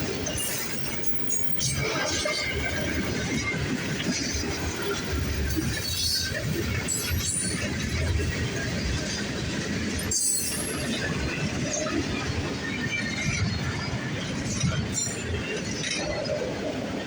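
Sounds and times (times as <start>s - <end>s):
train wheels rumbling on rail: 0.0s - 17.0s
metallic squeals and clinks: 10.0s - 10.8s.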